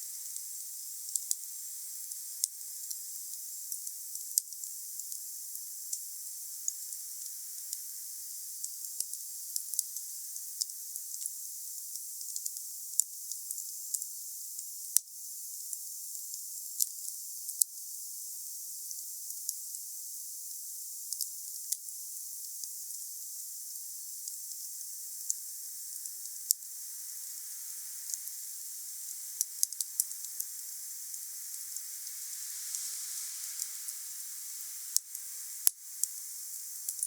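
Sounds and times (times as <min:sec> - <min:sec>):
wood fire hissing: 0:00.0 - 0:03.6, 0:24.3 - 0:37.0
fire crackles and pops: 0:25.3 - 0:37.0.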